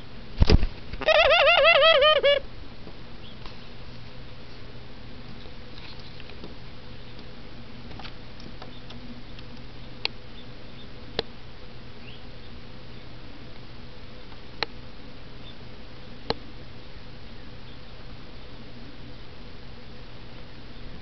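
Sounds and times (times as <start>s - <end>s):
steady low hum: 0.0s - 21.0s
faint bird chirps: 3.2s - 3.7s, 8.6s - 11.0s, 12.0s - 13.2s, 15.4s - 15.7s, 16.9s - 19.3s.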